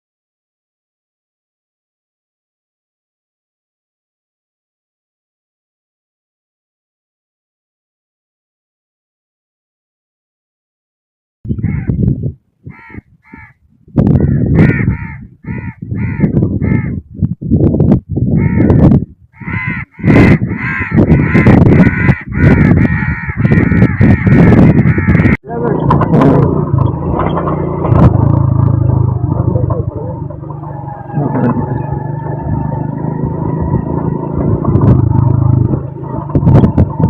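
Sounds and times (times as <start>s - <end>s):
crows cawing: 11.6s - 12.0s, 12.7s - 13.6s, 14.2s - 17.0s, 18.4s - 25.4s
steady low rumble: 13.9s - 37.0s.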